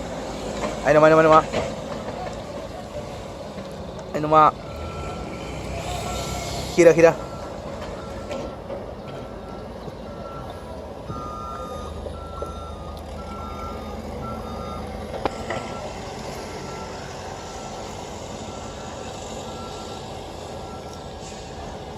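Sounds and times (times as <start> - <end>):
diesel engine rumble: 0.0 - 21.9
warning alarm beeping: 4.2 - 21.2.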